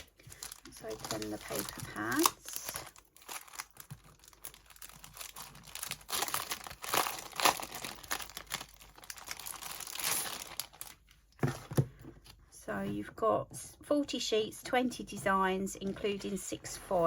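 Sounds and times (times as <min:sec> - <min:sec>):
paper packaging being torn: 0:00.4 - 0:10.9.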